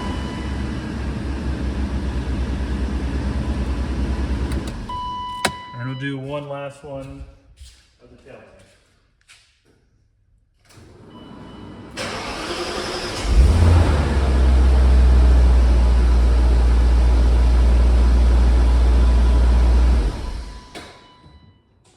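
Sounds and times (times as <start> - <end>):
car engine starting and idling: 0.0 - 5.7, 10.7 - 20.8.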